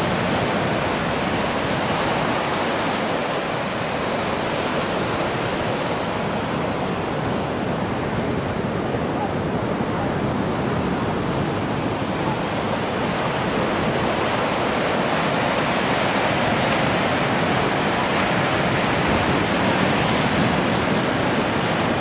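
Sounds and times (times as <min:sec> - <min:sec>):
ocean waves breaking on rocks: 0:00.0 - 0:08.8, 0:10.3 - 0:22.0.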